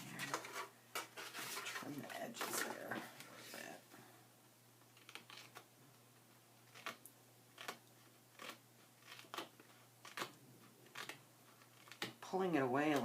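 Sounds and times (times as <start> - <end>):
scissors snipping paper: 7.6 - 12.2.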